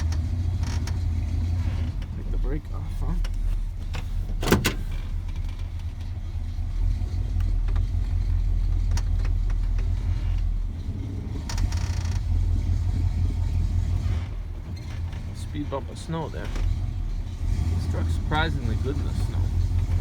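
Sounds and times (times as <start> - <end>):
truck engine running: 0.0 - 20.0
sharp clunk: 4.3 - 5.1.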